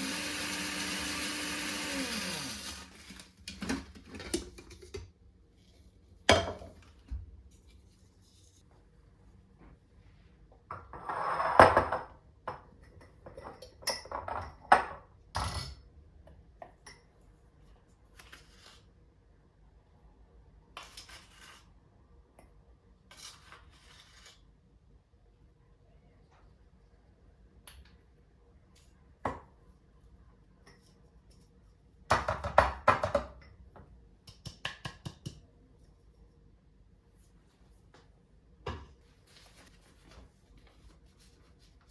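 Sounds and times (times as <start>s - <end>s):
soft rustles: 39.0s - 41.9s.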